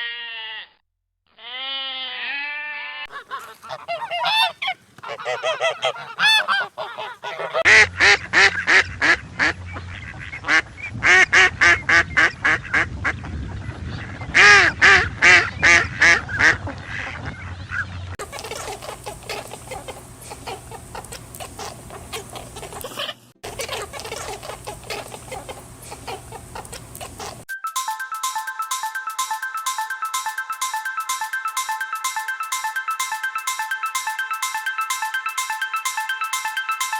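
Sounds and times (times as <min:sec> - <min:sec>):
chatter of short duck calls: 0:03.1 - 0:09.5, 0:18.2 - 0:27.4
ducks quacking: 0:03.1 - 0:13.2, 0:13.9 - 0:27.5.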